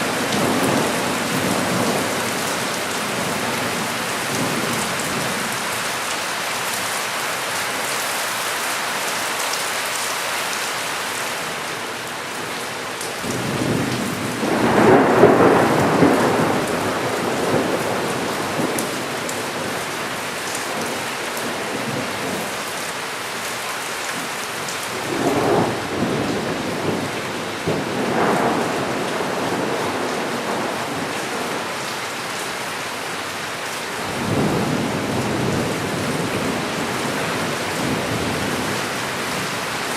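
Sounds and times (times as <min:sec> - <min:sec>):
rolling thunder: 0:00.0 - 0:05.5, 0:13.2 - 0:19.8, 0:24.9 - 0:31.7
steady rain falling: 0:00.0 - 0:39.9.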